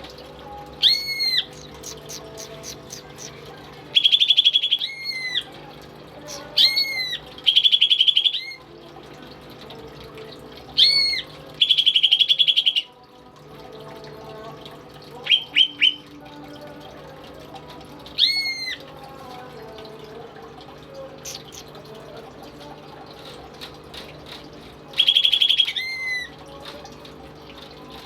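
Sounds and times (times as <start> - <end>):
bird singing trills and whistles: 0.8 - 5.5, 6.2 - 8.6, 10.8 - 13.0, 15.2 - 16.1, 18.2 - 18.8, 21.2 - 21.8, 25.0 - 26.4.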